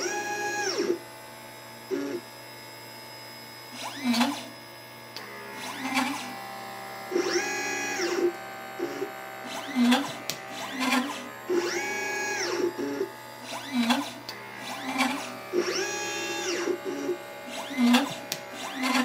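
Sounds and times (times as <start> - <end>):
stepper motor whine: 0.0 - 19.0.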